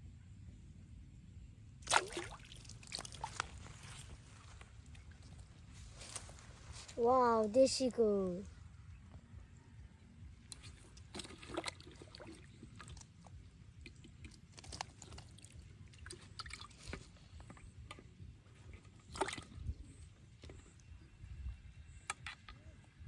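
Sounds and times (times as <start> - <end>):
steady low rumble: 0.0 - 1.9, 2.6 - 22.1
water splashing and sloshing: 1.8 - 8.3, 10.4 - 21.0.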